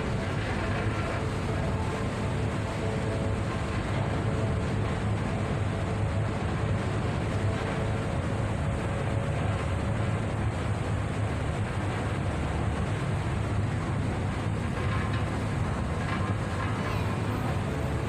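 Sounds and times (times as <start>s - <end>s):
ship engine drone: 0.0s - 18.0s
wind and sea rushing: 0.0s - 18.0s.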